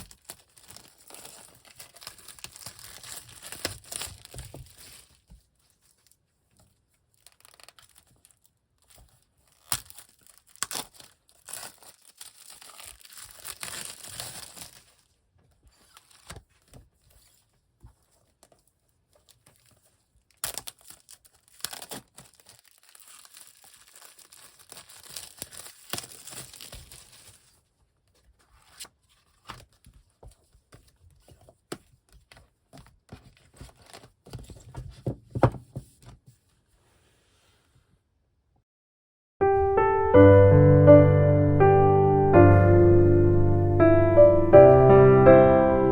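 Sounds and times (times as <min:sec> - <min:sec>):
packaging being torn and crinkled: 0:00.0 - 0:06.2, 0:06.8 - 0:16.8, 0:19.1 - 0:27.7.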